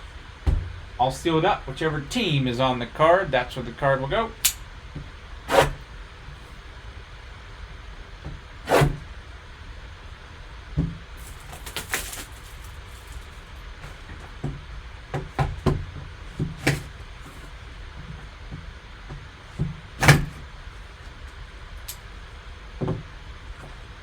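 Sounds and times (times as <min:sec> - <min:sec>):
packaging clicks and crinkles: 0:11.2 - 0:13.6.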